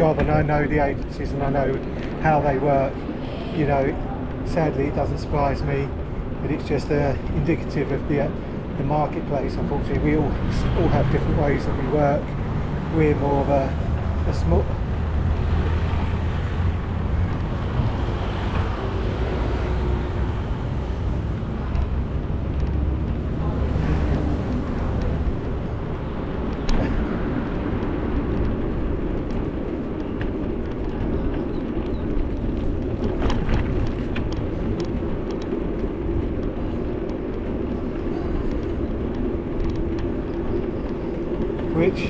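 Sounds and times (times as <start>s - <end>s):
wind and road rumble: 0.0s - 42.0s.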